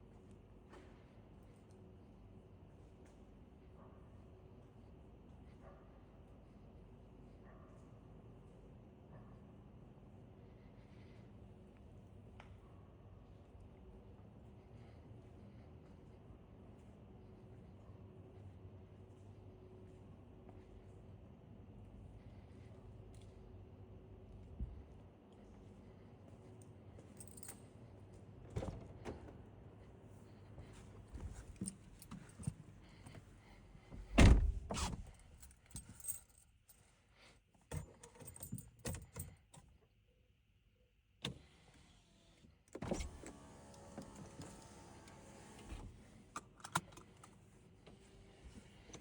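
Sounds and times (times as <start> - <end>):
car keys jangling: 27.2 - 27.6, 31.2 - 33.2, 34.0 - 36.8, 37.7 - 39.5, 46.4 - 47.4.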